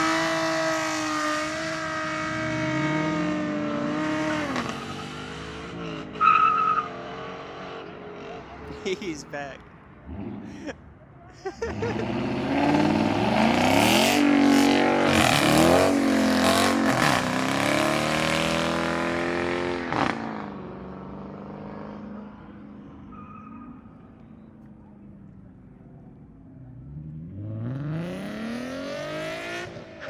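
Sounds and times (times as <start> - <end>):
car engine revving hard: 0.0 - 6.3, 11.7 - 21.9, 27.2 - 30.0.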